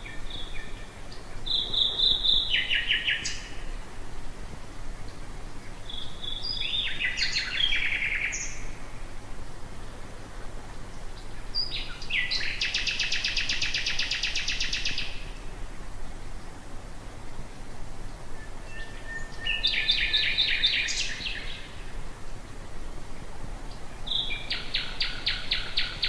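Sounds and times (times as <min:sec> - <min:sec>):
nightingale singing: 0:00.0 - 0:03.9, 0:05.0 - 0:08.8, 0:11.2 - 0:15.5, 0:18.3 - 0:22.0, 0:23.7 - 0:26.0.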